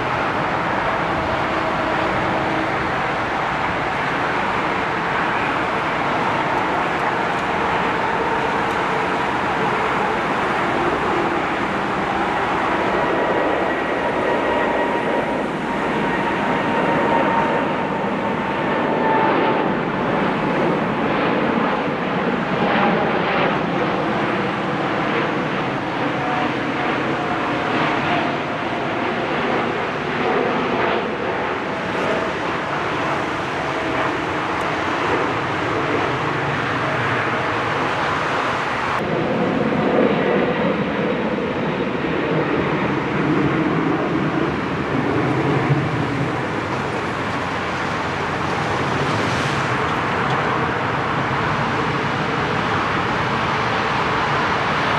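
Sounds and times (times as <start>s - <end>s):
jet engine rush: 0.0s - 54.9s.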